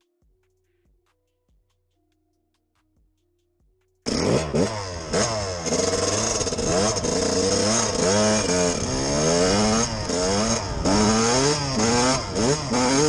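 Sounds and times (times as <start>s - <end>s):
vehicle engine revving: 4.1s - 13.0s.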